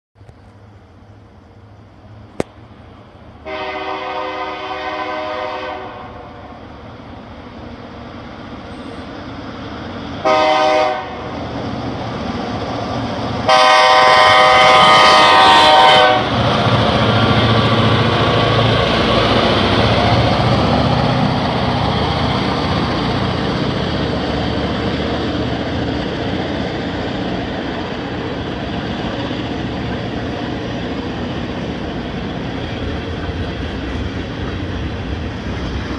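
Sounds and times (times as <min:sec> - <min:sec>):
train wheels rumbling on rail: 0:00.2 - 0:35.9
locomotive horn blasts: 0:03.4 - 0:06.5, 0:10.2 - 0:11.3, 0:13.4 - 0:16.4.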